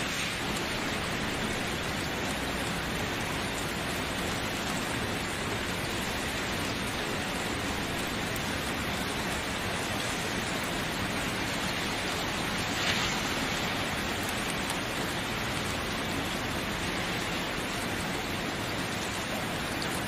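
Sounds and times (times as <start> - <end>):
water splash: 0.0 - 1.5
rain falling: 0.0 - 20.0.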